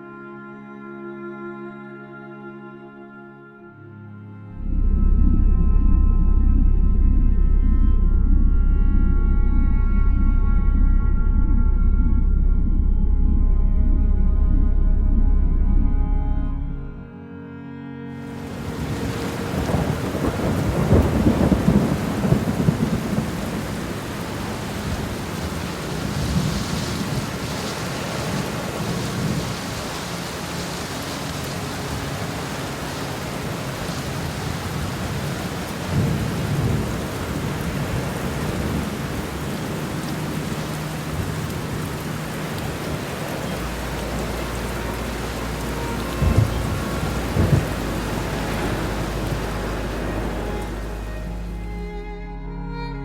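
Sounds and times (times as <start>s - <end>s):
heavy rain: 18.2s - 52.9s
thunder rolling: 18.4s - 51.7s
sharp thunder cracks: 18.9s - 27.4s, 46.1s - 50.8s.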